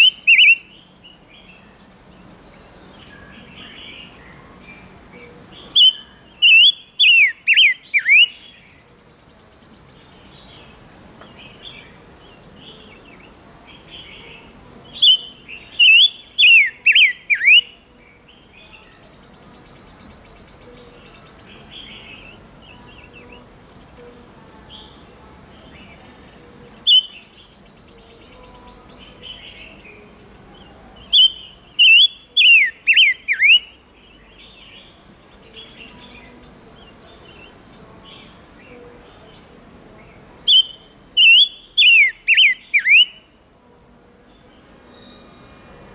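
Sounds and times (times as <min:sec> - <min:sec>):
bird whistled song phrases: 0:00.0 - 0:00.8, 0:03.0 - 0:09.7, 0:12.7 - 0:17.9, 0:26.8 - 0:29.9, 0:31.0 - 0:33.8, 0:40.4 - 0:43.6
soft bird chirps: 0:00.0 - 0:45.9.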